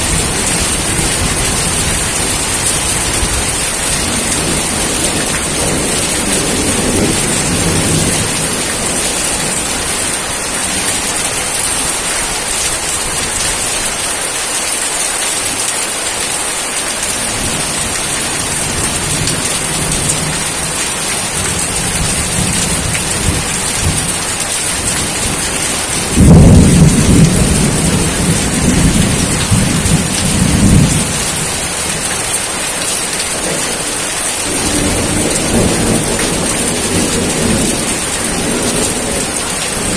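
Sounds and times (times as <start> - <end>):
heavy rain hissing: 0.0 - 39.9
thunderclap rolling: 18.3 - 32.1, 34.4 - 39.9.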